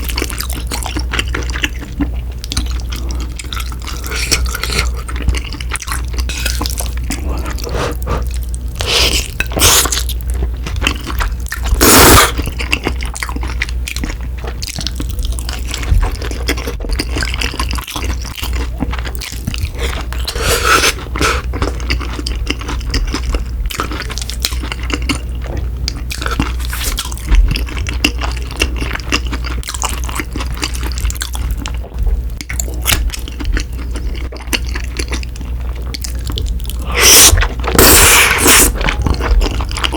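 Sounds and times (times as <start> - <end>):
wet chewing and smacking: 0.0 - 39.9.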